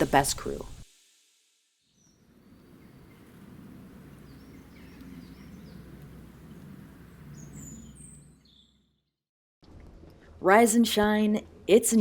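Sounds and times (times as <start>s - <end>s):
small birds chirping: 1.9s - 9.0s
low outdoor rumble: 2.4s - 8.4s.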